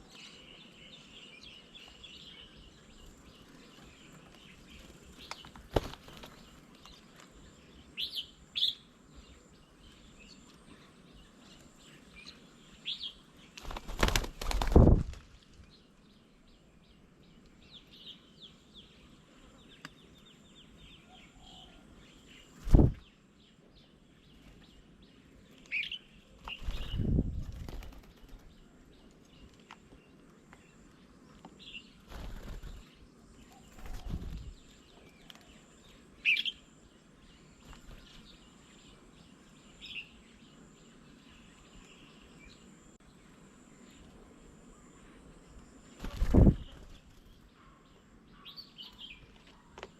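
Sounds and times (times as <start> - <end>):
birds chirping: 0.0 - 49.9
wings flapping: 4.8 - 6.6, 13.6 - 15.6, 22.6 - 23.0, 26.4 - 28.5, 32.0 - 32.9, 33.7 - 34.6, 46.0 - 47.4.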